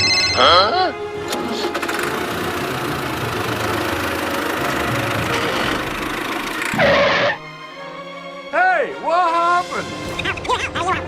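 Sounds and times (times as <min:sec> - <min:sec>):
vehicle engine rattling rumble: 0:01.1 - 0:06.8.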